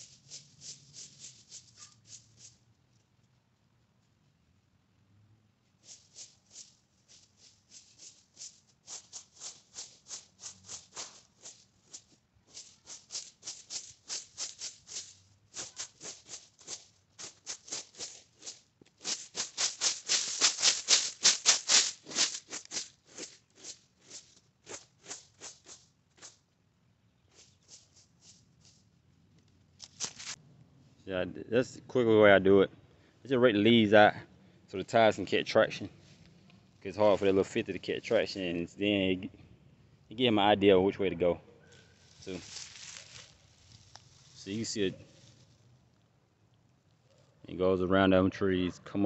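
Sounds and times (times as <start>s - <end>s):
rake scraping dry leaves: 0.0s - 2.6s, 5.8s - 26.4s, 27.3s - 28.9s, 29.8s - 30.4s, 41.7s - 45.7s.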